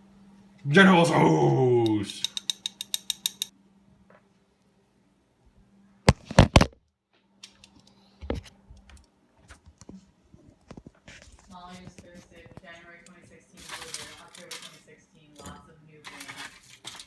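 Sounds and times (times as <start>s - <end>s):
faint steady hum: 0.0s - 6.5s.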